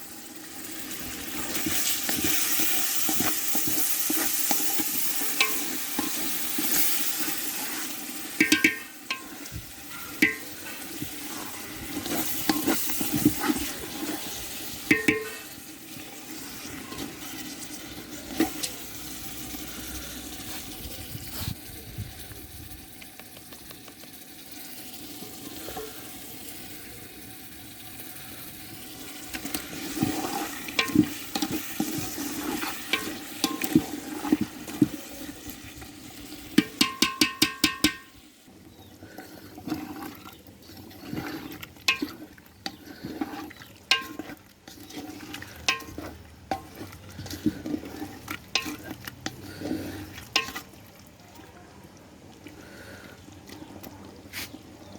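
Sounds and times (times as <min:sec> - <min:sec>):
curry sizzling in a pan: 0:00.0 - 0:51.9
metal spoon knocking on pan: 0:08.4 - 0:09.4, 0:10.2 - 0:10.6, 0:14.9 - 0:15.4, 0:36.6 - 0:38.2.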